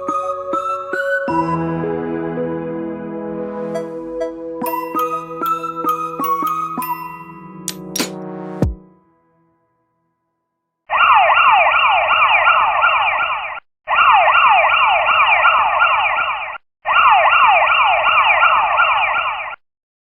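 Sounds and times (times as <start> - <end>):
police siren sweeps: 10.9 - 19.6.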